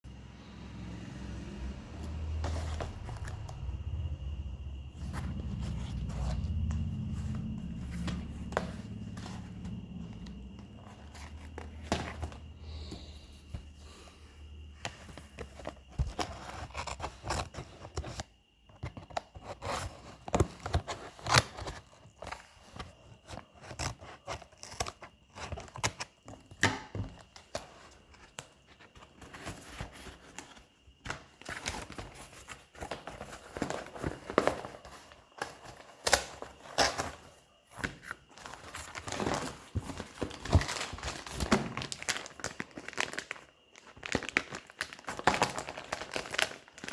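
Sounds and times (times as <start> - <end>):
plastic packaging crinkling: 38.4 - 46.9.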